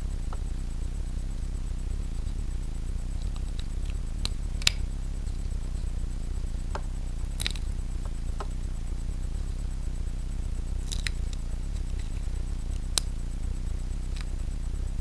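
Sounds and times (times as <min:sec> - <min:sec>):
steady low hum: 0:00.0 - 0:15.0
small clicks and snips: 0:03.2 - 0:04.9, 0:07.3 - 0:07.8, 0:10.8 - 0:13.2, 0:14.0 - 0:14.4.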